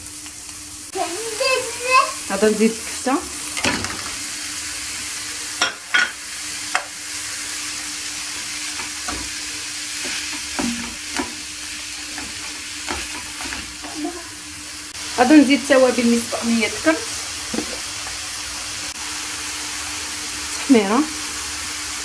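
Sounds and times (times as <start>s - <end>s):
meat and onion sizzling in a pan: 0.0s - 22.0s
wooden spoon scraping a pan: 8.3s - 14.2s.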